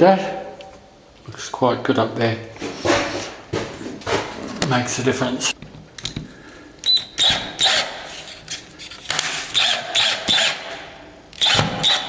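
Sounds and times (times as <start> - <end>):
cordless drill driving screws: 7.2 - 8.3, 9.2 - 10.8, 11.4 - 12.0.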